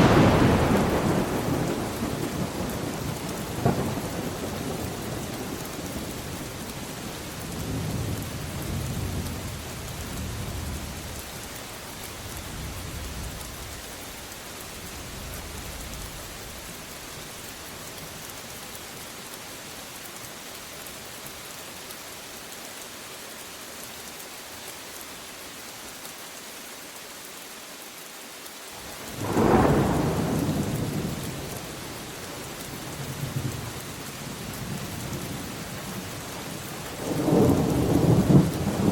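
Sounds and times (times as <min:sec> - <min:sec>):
loud thunderclap: 0:00.0 - 0:05.6, 0:29.1 - 0:31.4, 0:37.0 - 0:38.9
rolling thunder: 0:00.0 - 0:06.3, 0:29.0 - 0:31.8, 0:36.9 - 0:38.9
steady rain: 0:00.0 - 0:38.9.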